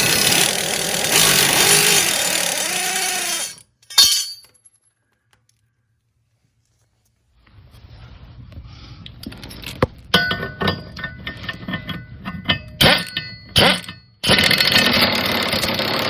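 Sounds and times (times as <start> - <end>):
air ratchet running: 0.0 - 3.6
metal clinking and clanging: 3.8 - 4.9, 9.5 - 14.2.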